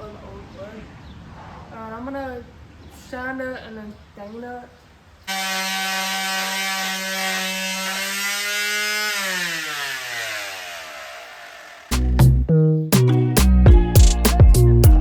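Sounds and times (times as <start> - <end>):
electric power sander running: 5.3 - 12.0
music with heavy beat: 11.9 - 15.0.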